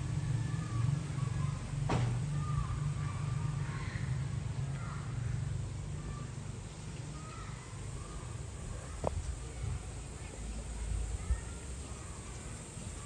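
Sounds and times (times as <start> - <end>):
birds cawing: 2.3 - 6.4.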